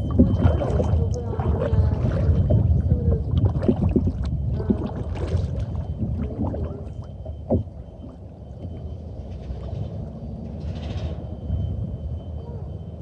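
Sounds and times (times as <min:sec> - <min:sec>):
small splashes: 0:00.0 - 0:09.9
water sloshing around kayak: 0:00.0 - 0:10.3.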